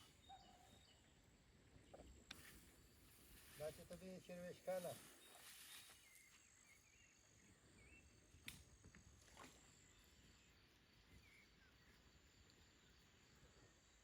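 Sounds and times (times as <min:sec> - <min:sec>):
faint bird chirps: 0:00.0 - 0:08.2, 0:09.8 - 0:14.0
faint click: 0:08.4 - 0:08.7.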